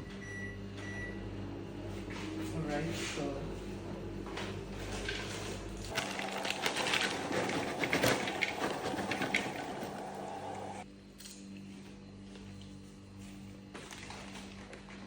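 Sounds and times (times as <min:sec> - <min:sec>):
microwave oven humming: 0:00.0 - 0:02.5, 0:03.4 - 0:15.0
popcorn popping: 0:05.9 - 0:10.8.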